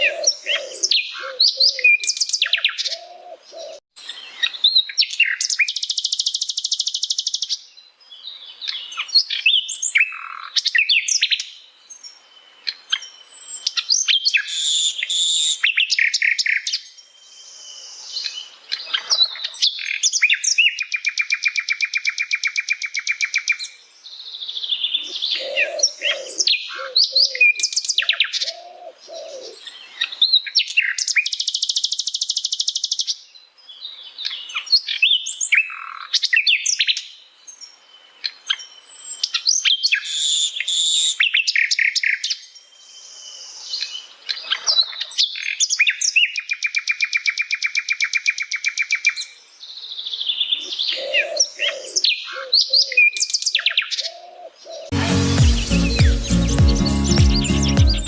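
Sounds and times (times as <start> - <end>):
bird singing chirps and whistles: 4.7 - 7.6, 13.0 - 16.9, 19.6 - 23.8, 30.3 - 33.1, 38.7 - 42.4, 45.2 - 49.4.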